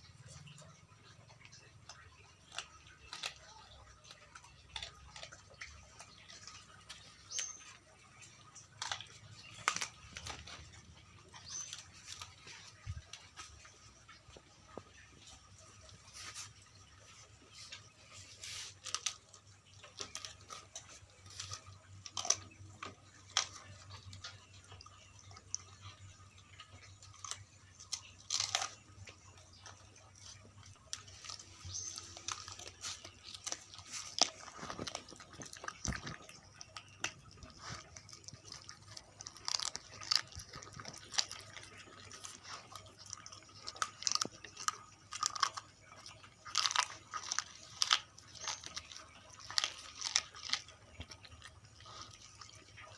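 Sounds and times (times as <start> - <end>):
dogs crunching on bones: 0.0 - 52.9.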